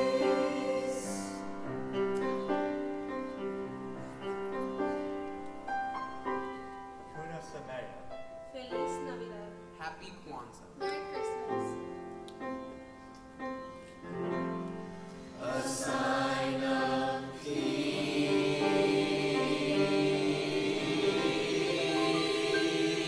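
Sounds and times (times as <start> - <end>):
choir singing with concert band: 0.0 - 1.9, 15.4 - 23.0.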